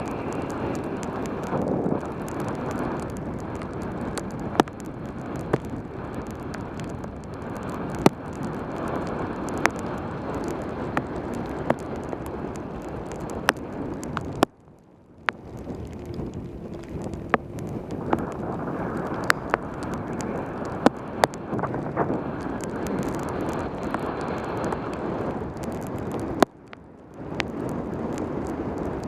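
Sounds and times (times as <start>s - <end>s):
bicycle tyre hiss on wet road: 0.0s - 14.4s, 15.4s - 26.4s, 27.2s - 29.0s
sharp ticks: 0.0s - 14.5s, 15.2s - 21.6s
wind rushing over microphone: 0.0s - 29.0s.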